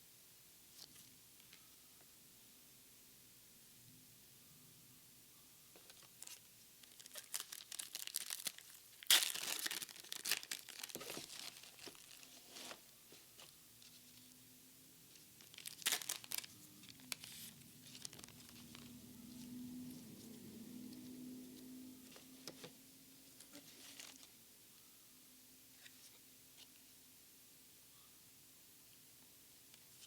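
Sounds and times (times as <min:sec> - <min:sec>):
faint low hum: 0:00.0 - 0:30.0
plastic wrapper crinkling: 0:05.8 - 0:13.5, 0:15.4 - 0:20.0
plastic wrapper tearing: 0:06.0 - 0:12.8, 0:15.4 - 0:18.9.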